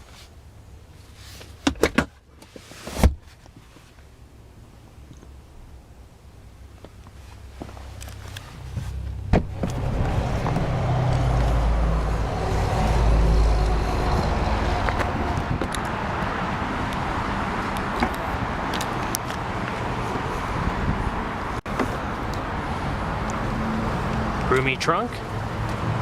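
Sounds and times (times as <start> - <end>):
road and tyre noise: 0.0 - 26.0
vehicle engine rumbling: 0.0 - 26.0.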